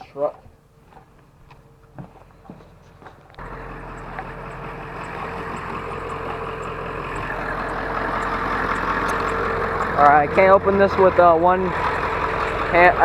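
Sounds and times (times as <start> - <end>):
truck engine idling: 0.4 - 13.0
faint clicks: 3.3 - 10.0.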